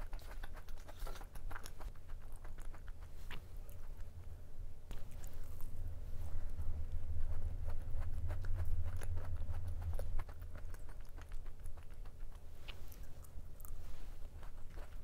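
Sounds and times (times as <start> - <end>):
low rumble: 3.5 - 15.0
crisp chewing clicks: 8.3 - 15.0.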